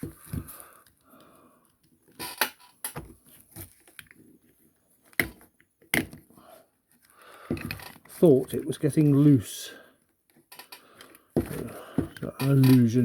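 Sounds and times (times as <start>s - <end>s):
toy parts clicking and knocking: 1.6s - 3.1s, 10.3s - 13.0s.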